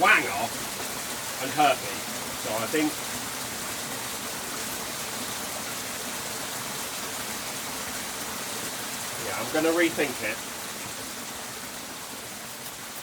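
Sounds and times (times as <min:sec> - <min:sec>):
steady background hiss: 0:00.0 - 0:11.8.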